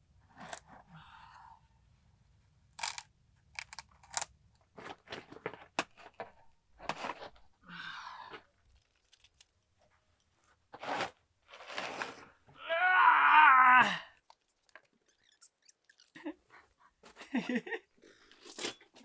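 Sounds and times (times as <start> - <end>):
knocks and scrapes on wooden forms: 9.9 - 12.5.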